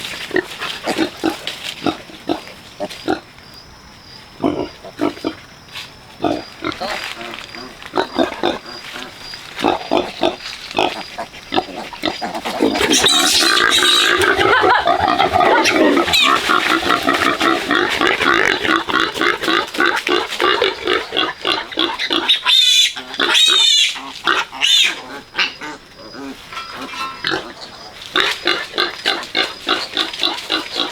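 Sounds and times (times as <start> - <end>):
pigs squealing and grunting: 6.2 - 30.9
high wavering piglet squeals: 12.7 - 14.3, 22.2 - 25.1.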